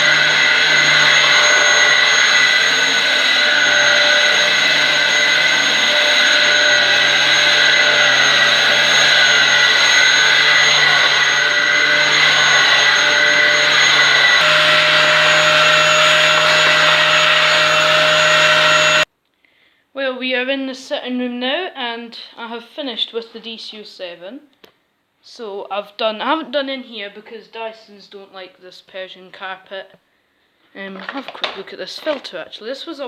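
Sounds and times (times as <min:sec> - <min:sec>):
vacuum cleaner running on carpet: 0:00.0 - 0:19.1.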